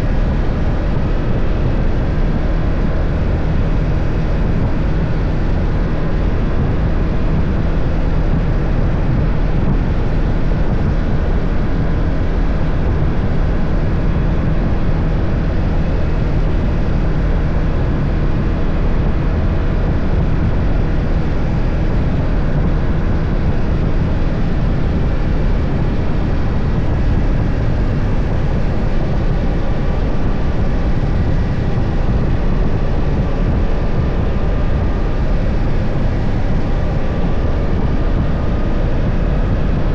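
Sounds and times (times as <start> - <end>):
motorcycle engine cruising: 0.0 - 39.9
rushing noise: 0.0 - 39.9.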